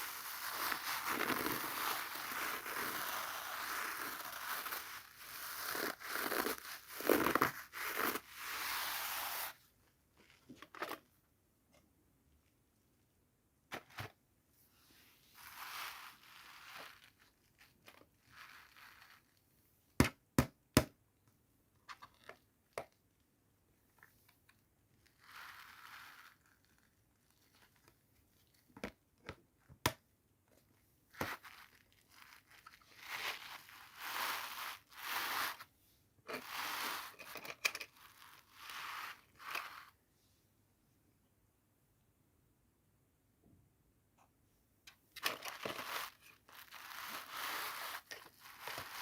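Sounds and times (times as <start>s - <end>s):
packaging crinkling and tearing: 0.0s - 8.2s, 45.2s - 49.0s.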